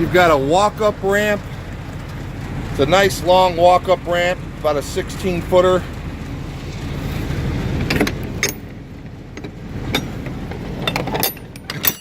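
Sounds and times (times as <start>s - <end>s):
refrigeration unit low rumble: 0.0s - 12.0s
sharp clicks and knocks: 7.7s - 12.0s.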